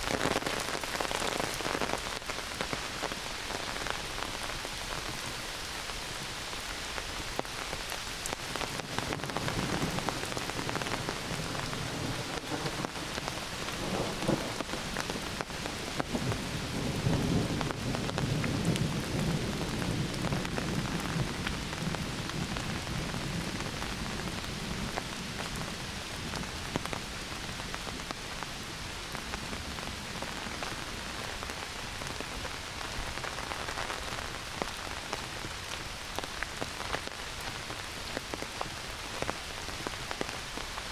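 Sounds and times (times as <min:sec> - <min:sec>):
heavy rain: 0:00.0 - 0:40.9
thunder rolling: 0:13.8 - 0:14.6.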